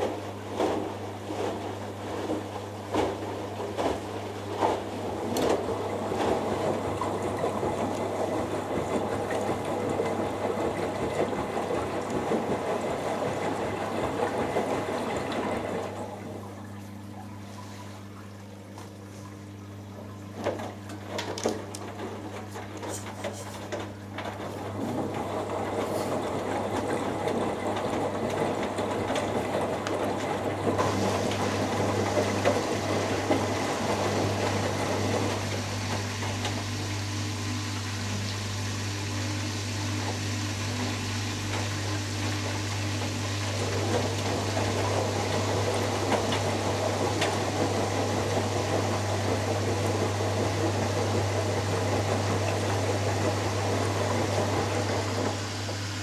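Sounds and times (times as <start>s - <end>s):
washing machine motor hum: 0.0s - 56.0s
water swishing: 24.0s - 56.0s.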